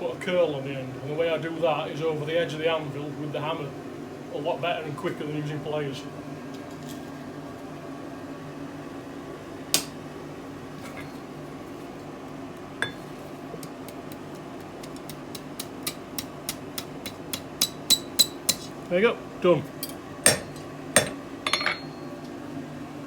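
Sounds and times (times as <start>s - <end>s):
steady hum: 7.2s - 23.0s
hammer ringing on anvil: 20.3s - 22.2s.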